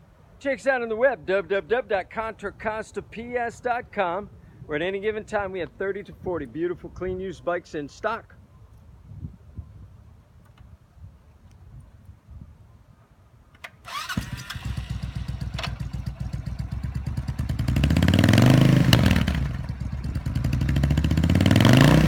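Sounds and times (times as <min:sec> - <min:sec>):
motorcycle engine idling and revving: 0:13.9 - 0:22.0
starter click: 0:15.5 - 0:15.9.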